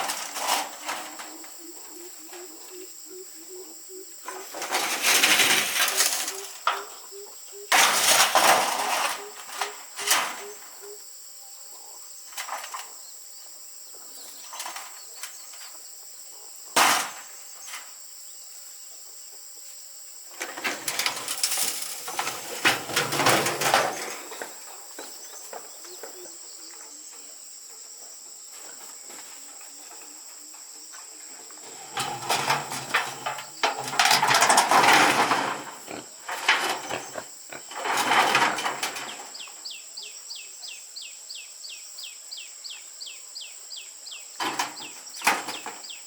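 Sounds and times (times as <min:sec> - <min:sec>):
clattering and scraping: 0:00.0 - 0:01.4, 0:04.3 - 0:06.9, 0:07.7 - 0:10.5, 0:20.3 - 0:25.7, 0:31.6 - 0:39.4, 0:44.4 - 0:45.8.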